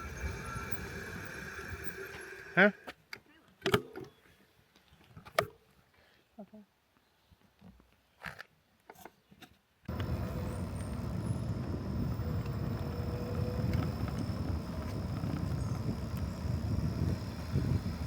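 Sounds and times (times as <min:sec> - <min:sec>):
faint clicks: 0:09.9 - 0:18.0
wind on microphone: 0:09.9 - 0:18.0.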